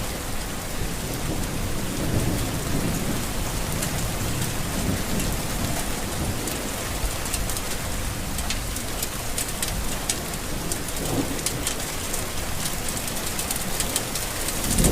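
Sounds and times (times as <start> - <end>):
rain falling: 0.0 - 14.9
low rumble of thunder: 0.1 - 14.9
sharp raindrop ticks: 3.6 - 14.9.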